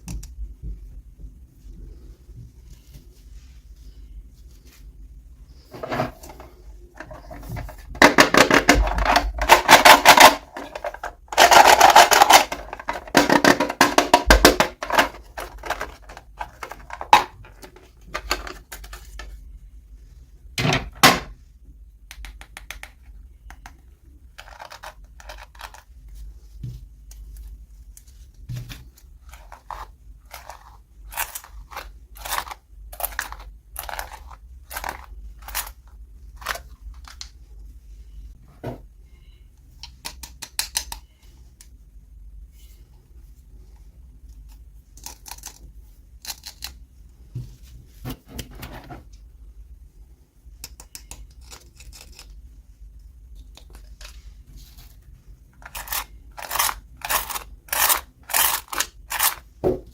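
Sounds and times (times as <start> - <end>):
clicks and taps: 22.1 - 23.8.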